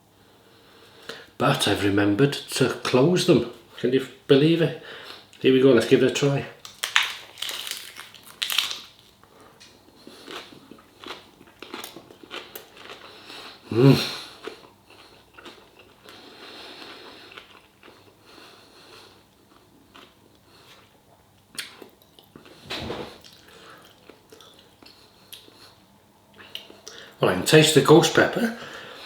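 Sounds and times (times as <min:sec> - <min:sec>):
person chewing food: 0:06.6 - 0:22.6, 0:23.2 - 0:25.8.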